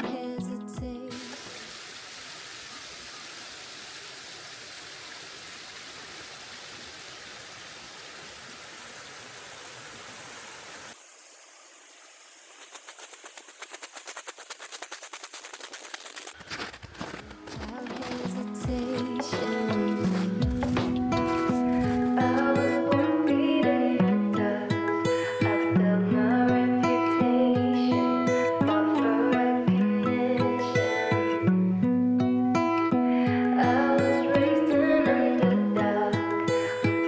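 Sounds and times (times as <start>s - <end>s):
mountain stream and waterfall rushing: 1.1s - 22.4s
fast run of clicks: 12.6s - 19.8s.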